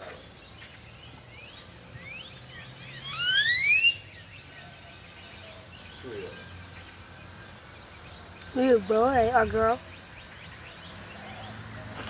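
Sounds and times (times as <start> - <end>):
faint rising bird chirps: 0.0 - 12.0
loud rising whistled bird note: 2.9 - 4.1.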